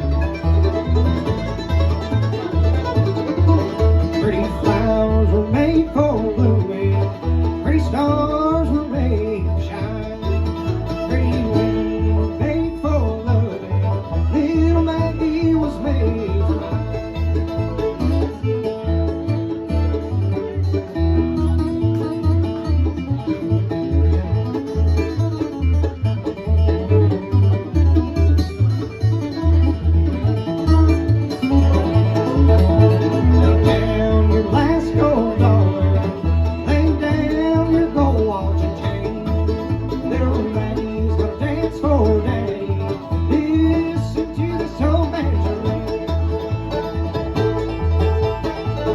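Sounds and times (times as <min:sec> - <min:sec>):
banjo plucking: 0:00.0 - 0:48.9
guitar: 0:00.0 - 0:48.9
mandolin: 0:00.0 - 0:48.9
pulsing bass line: 0:00.0 - 0:48.9.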